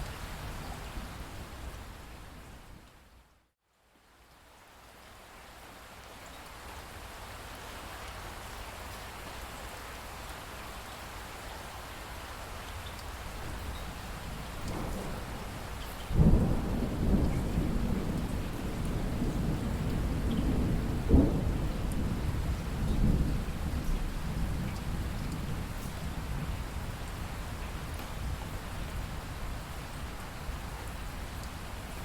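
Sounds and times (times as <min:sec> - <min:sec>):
steady rain: 0:00.0 - 0:32.0
loud thunderclap: 0:14.7 - 0:24.7.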